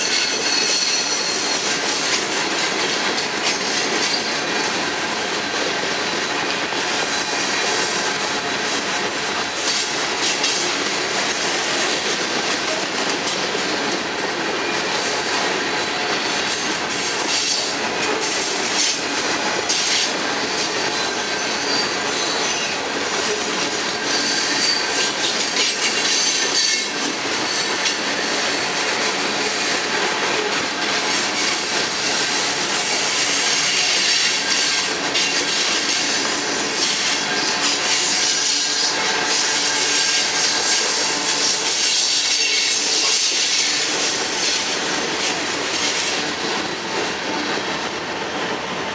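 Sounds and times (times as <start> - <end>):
high wheel squeal: 0.0 - 2.6, 20.5 - 22.8, 24.0 - 28.6
steel wheels rumbling on rail: 0.0 - 48.9.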